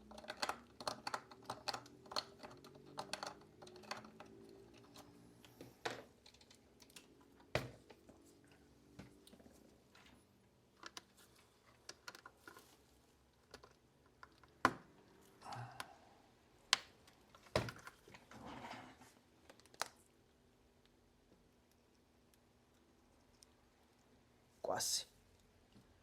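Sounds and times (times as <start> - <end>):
tools clicking on plastic: 0.0 - 5.2.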